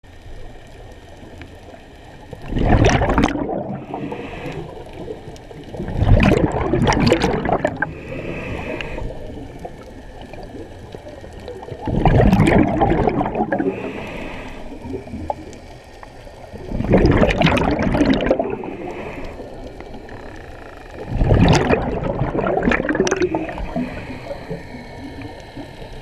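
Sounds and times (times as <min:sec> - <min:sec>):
rush of bubbles: 0:02.2 - 0:15.8, 0:16.4 - 0:20.2, 0:21.0 - 0:26.0
hissing inhalation through regulator: 0:03.4 - 0:05.4, 0:07.6 - 0:11.2, 0:13.2 - 0:15.2, 0:18.3 - 0:21.3, 0:22.9 - 0:26.0.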